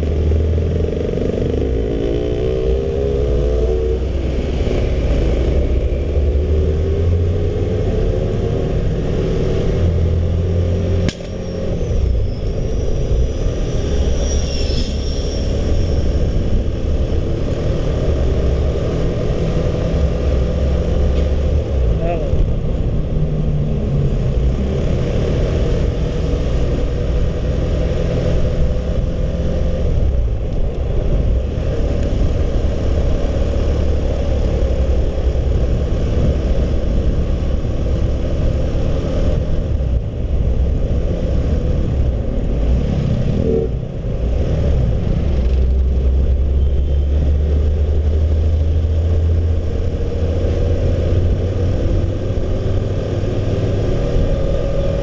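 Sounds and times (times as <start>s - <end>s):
wind rumble on microphone: 15.3s - 55.0s.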